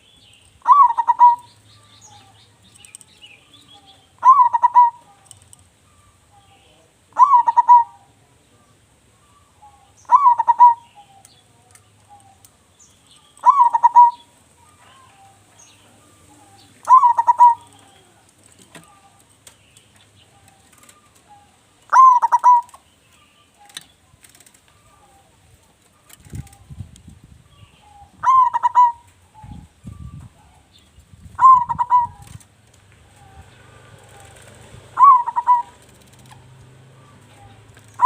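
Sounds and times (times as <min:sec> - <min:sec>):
dove cooing: 0:00.6 - 0:02.3, 0:03.8 - 0:06.2, 0:07.1 - 0:08.2, 0:09.2 - 0:11.2, 0:13.4 - 0:19.2, 0:20.3 - 0:22.8, 0:27.8 - 0:30.6, 0:31.4 - 0:32.4, 0:33.0 - 0:38.0.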